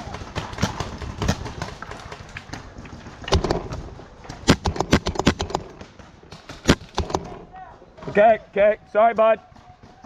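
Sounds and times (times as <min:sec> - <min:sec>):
paintball markers firing: 0:00.0 - 0:07.4.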